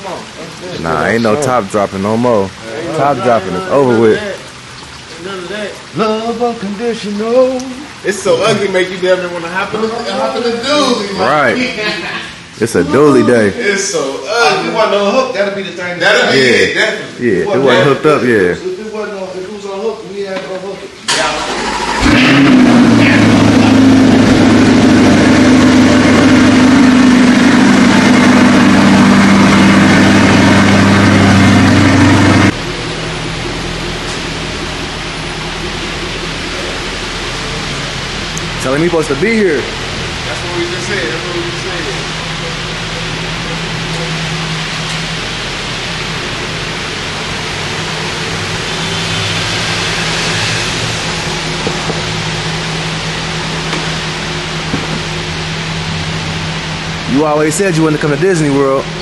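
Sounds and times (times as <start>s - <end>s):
heavy rain: 0.0s - 15.0s, 21.0s - 59.0s
vehicle engine idling: 21.1s - 59.0s.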